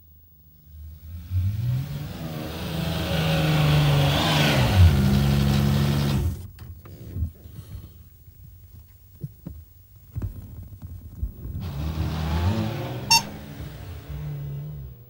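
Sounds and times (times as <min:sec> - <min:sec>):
car engine pulling away: 0:00.7 - 0:06.6, 0:11.1 - 0:15.0
sharp high beep: 0:13.1 - 0:13.3.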